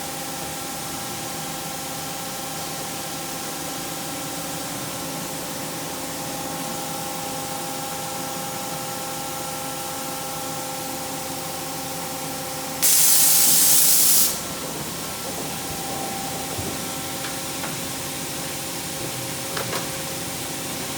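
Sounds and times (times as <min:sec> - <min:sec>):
spray hiss: 0:12.8 - 0:14.5
loud hissing blast: 0:12.8 - 0:14.6
milling machine whine: 0:14.4 - 0:20.8.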